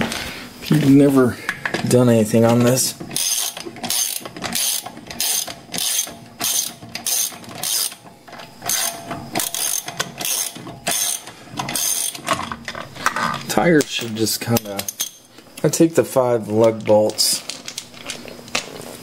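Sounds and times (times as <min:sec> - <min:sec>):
ratchet wrench clicking: 0:03.2 - 0:08.0, 0:08.7 - 0:12.3.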